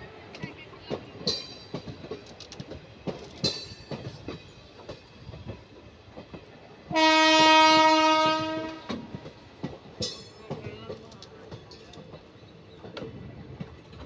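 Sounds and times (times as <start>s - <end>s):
train wheels clacking over rail joints: 0.3s - 14.0s
locomotive air horn: 6.9s - 9.0s.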